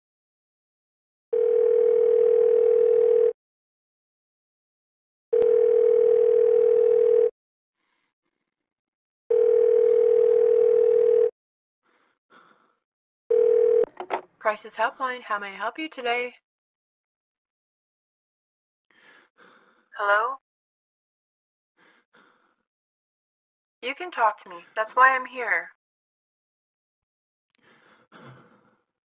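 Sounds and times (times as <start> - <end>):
telephone ringback tone: 1.4 - 3.4, 5.4 - 7.3, 9.3 - 11.3, 13.3 - 13.9.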